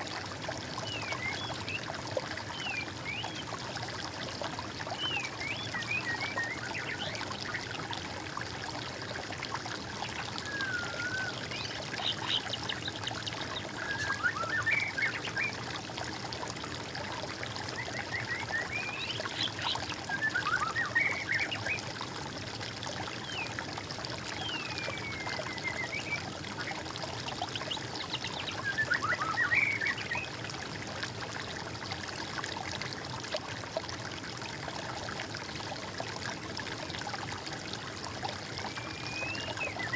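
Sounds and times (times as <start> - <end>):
water trickling: 0.0 - 39.9
songbirds singing: 4.8 - 7.7, 10.2 - 15.6, 17.8 - 21.9, 24.3 - 30.4, 38.5 - 39.9.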